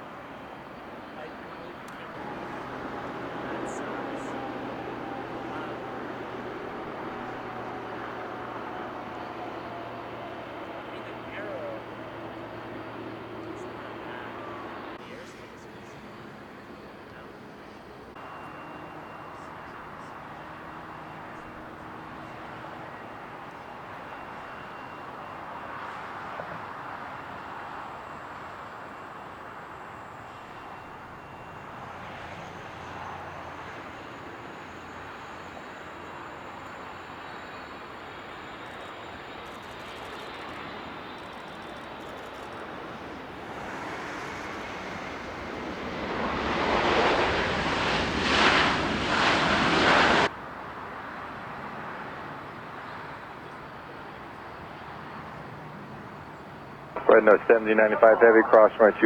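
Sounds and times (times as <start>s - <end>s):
jet engine roar: 0.0s - 59.0s
distant background rumble: 56.9s - 59.0s.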